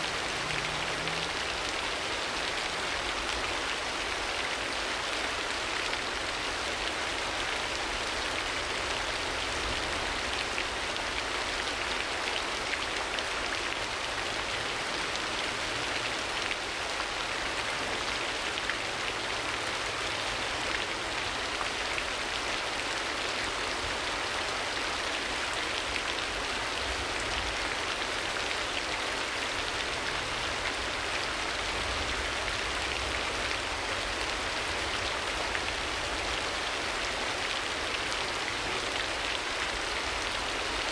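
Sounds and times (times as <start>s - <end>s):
rain falling on a surface: 0.0s - 40.9s.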